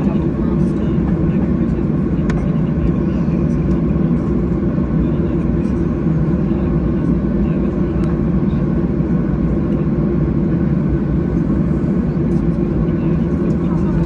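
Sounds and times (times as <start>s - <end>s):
jet engine cabin rumble: 0.0s - 14.0s.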